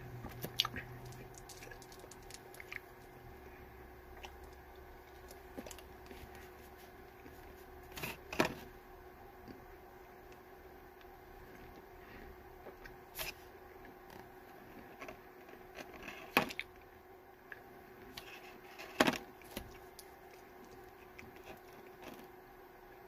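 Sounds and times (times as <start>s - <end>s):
faint steady hum: 0.0s - 23.0s
teeth clicks: 0.4s - 2.9s
chewing hard candy: 0.4s - 3.2s.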